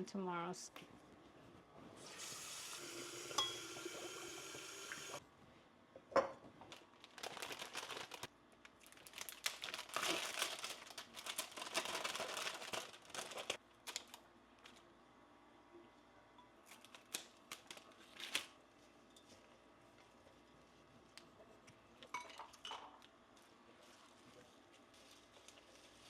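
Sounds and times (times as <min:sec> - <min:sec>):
water running from a tap: 0:02.0 - 0:05.2
plastic packaging crinkling: 0:06.7 - 0:14.8, 0:16.6 - 0:18.6.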